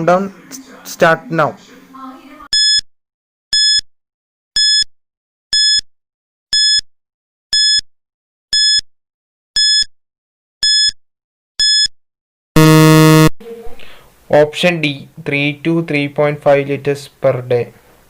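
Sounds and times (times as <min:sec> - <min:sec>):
short electronic timer beeps: 0:02.5 - 0:02.8, 0:03.5 - 0:03.8, 0:04.6 - 0:04.9, 0:05.5 - 0:05.8, 0:06.5 - 0:06.8, 0:07.5 - 0:07.8, 0:08.5 - 0:08.8, 0:09.6 - 0:09.9, 0:10.6 - 0:11.0, 0:11.6 - 0:11.9, 0:12.6 - 0:13.3.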